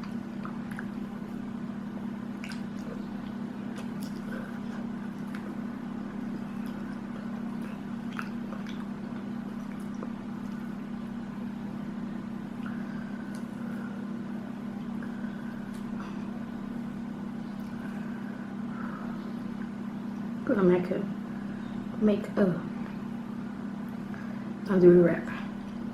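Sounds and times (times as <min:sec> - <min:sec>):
chewing and mouth clicks: 0:00.0 - 0:01.4, 0:02.3 - 0:10.8
low hum: 0:00.0 - 0:25.9.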